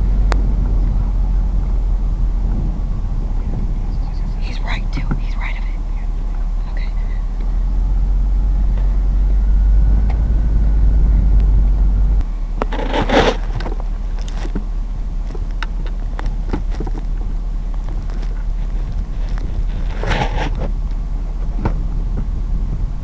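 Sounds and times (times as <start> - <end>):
pickup truck engine rumbling: 0.0 - 23.0
loud rustle and scrape: 12.6 - 15.5, 16.2 - 20.8
clicks and knocks of gear: 12.6 - 22.3.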